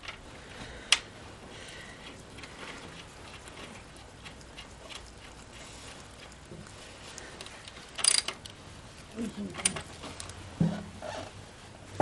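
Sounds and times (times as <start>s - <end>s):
tools clicking and tapping: 8.0s - 8.6s.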